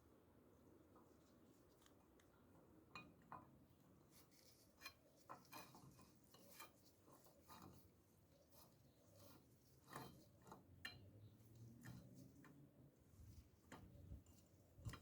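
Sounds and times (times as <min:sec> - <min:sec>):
faint clicks and taps: 0:00.9 - 0:07.9, 0:13.4 - 0:15.0.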